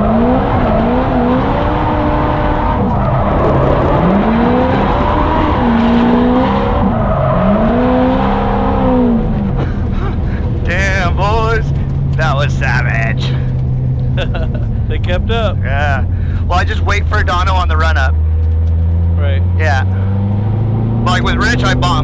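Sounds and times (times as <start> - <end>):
car engine revving: 0.0 - 22.0
tyres squealing and skidding: 1.9 - 9.0.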